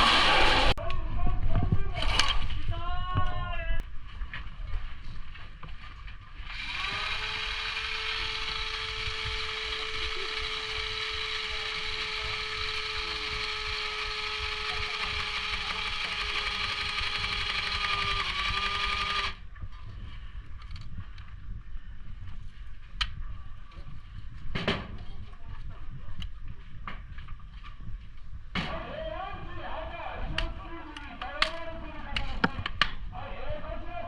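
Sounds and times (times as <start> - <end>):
electric motor whining: 6.4 - 19.4.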